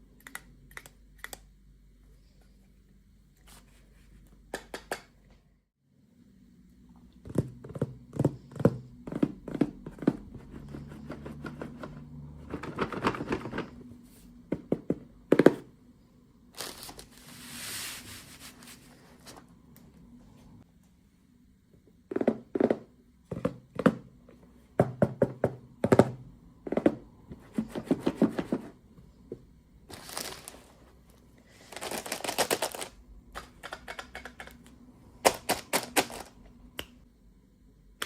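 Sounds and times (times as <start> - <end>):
packaging crinkling: 29.9 - 30.7, 31.6 - 33.0.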